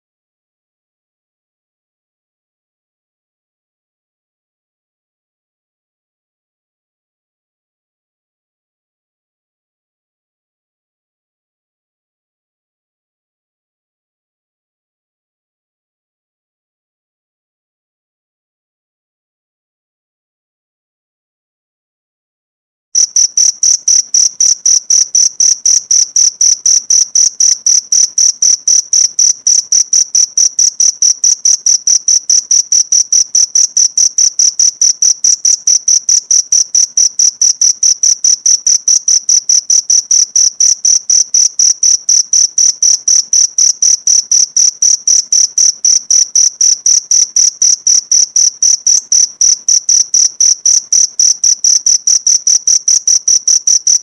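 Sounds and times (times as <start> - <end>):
cricket chirping: 23.0 - 54.0.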